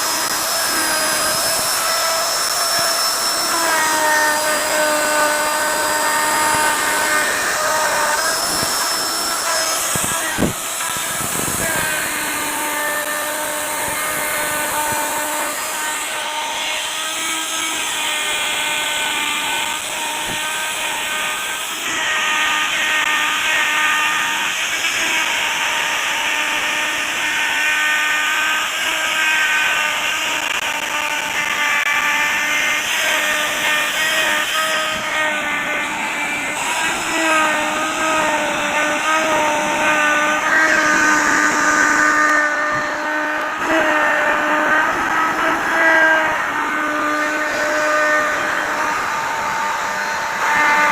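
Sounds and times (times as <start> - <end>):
router bit rasping wood: 0.0 - 50.9
wood router whining: 0.0 - 50.9.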